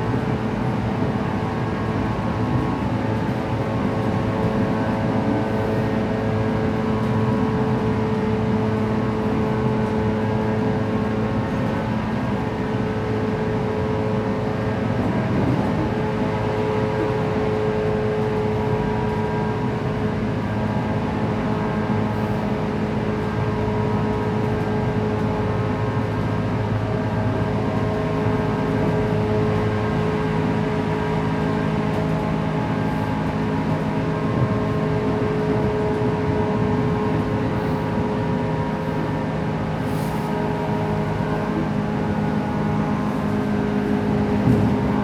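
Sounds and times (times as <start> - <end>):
train wheels rumbling on rail: 0.0 - 45.0
train motor hum: 28.6 - 45.0.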